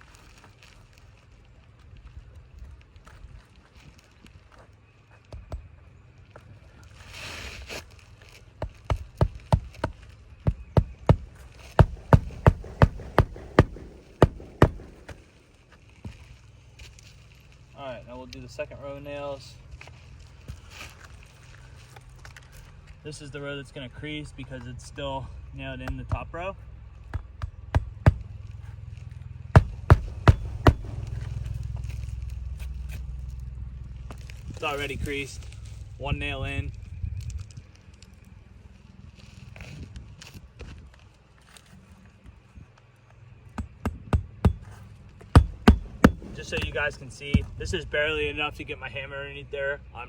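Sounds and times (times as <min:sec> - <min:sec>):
rustle: 0:00.0 - 0:05.3, 0:06.0 - 0:10.5, 0:11.3 - 0:25.5, 0:28.2 - 0:43.2
hammer striking roofing nails: 0:08.6 - 0:15.4, 0:27.1 - 0:28.4, 0:29.6 - 0:31.3, 0:43.6 - 0:47.6
low hum: 0:09.3 - 0:17.8, 0:26.6 - 0:39.1.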